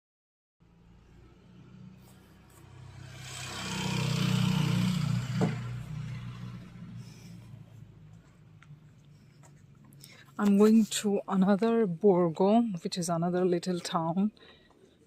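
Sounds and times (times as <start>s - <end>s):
vehicle passing by: 0.6s - 10.3s.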